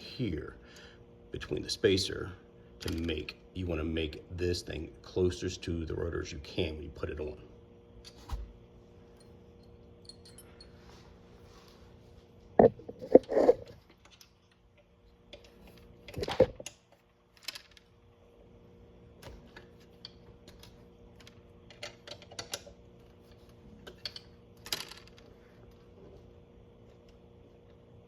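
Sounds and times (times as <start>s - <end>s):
metal parts clinking: 9.2s - 10.8s.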